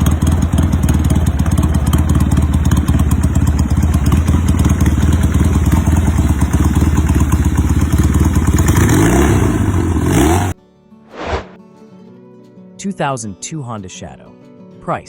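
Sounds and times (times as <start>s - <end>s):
motorcycle engine idling and revving: 0.0s - 10.6s.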